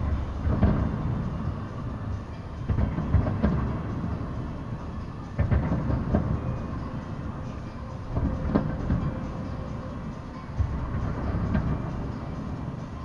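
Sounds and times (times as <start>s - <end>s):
continuous low rumble: 0.0s - 13.0s
distant fireworks booms: 0.4s - 1.2s, 2.7s - 4.2s, 5.4s - 6.9s.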